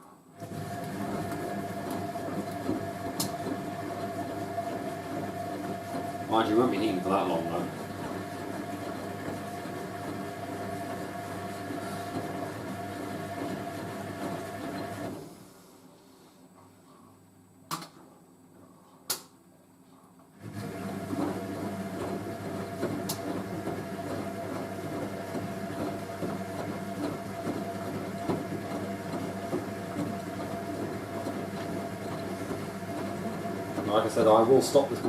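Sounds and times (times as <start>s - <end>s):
washing machine drum tumbling: 20.4s - 35.0s.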